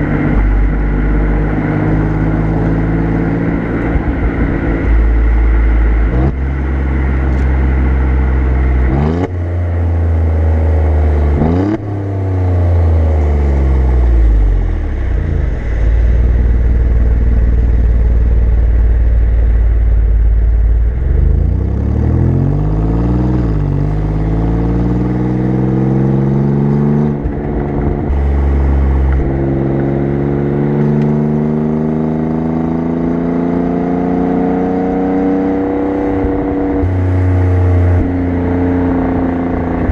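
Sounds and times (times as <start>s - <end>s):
car engine exhaust revving: 0.0s - 39.9s
wind and road noise: 0.0s - 39.9s.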